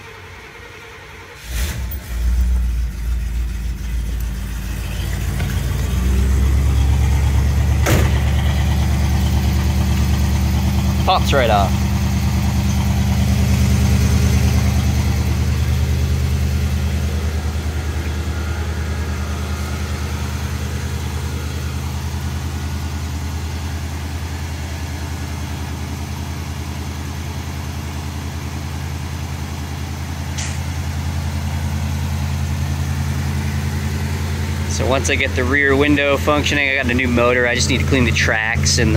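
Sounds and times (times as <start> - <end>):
car engine idling: 0.0 - 38.9
brief click: 30.4 - 30.7.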